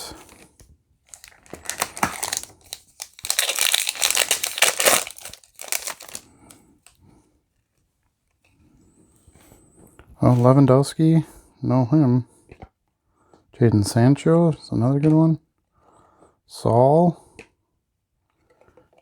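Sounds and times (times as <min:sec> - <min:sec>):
foil card pack tearing: 0:00.0 - 0:06.2
wrapper crinkling: 0:00.0 - 0:06.5.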